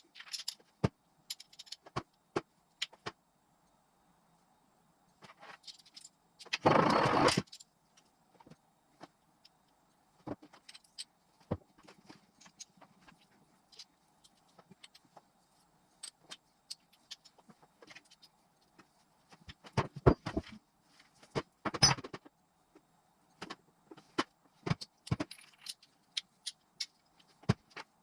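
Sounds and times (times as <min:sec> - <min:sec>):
metal parts and tools clinking: 0:00.0 - 0:03.0, 0:05.3 - 0:07.7, 0:10.3 - 0:20.5, 0:24.0 - 0:28.0.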